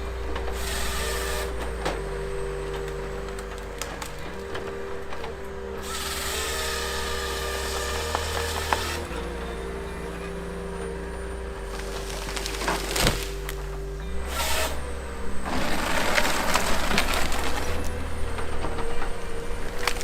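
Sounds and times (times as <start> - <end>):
machine cutting through wood: 0.0 - 20.0
wood-processing machine running: 0.0 - 20.0
sharp wood cracks: 11.7 - 14.8, 15.5 - 20.0.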